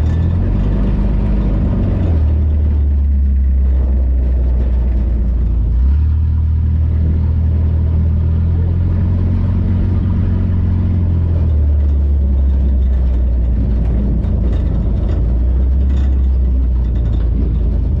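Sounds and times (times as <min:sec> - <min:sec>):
race car engine running: 0:00.0 - 0:18.0.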